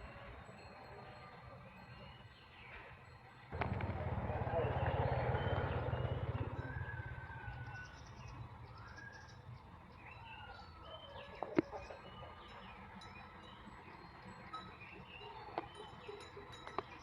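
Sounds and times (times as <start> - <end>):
birds chirping and whistling: 4.2 - 17.0.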